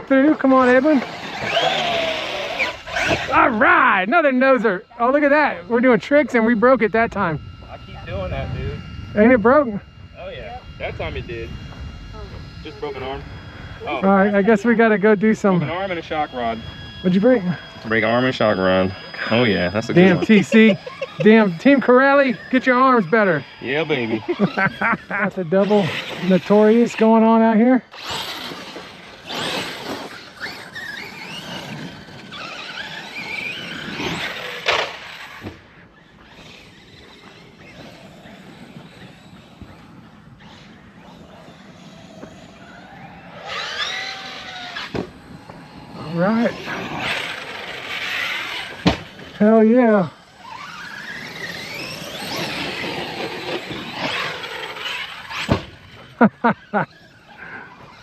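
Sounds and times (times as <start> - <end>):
electric motors whining: 0.0 - 58.0
thump: 44.9 - 45.1, 48.8 - 49.1, 55.4 - 55.7.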